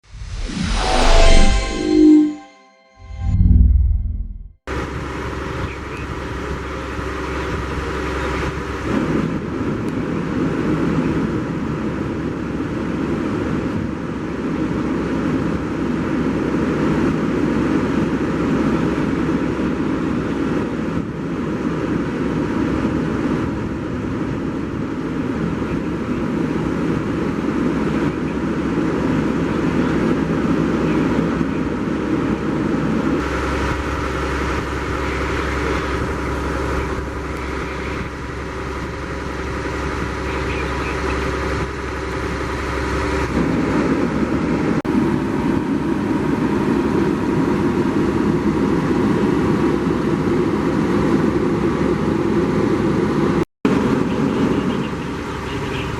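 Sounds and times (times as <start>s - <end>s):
motor vehicle engine running: 4.7s - 9.6s, 33.2s - 44.8s.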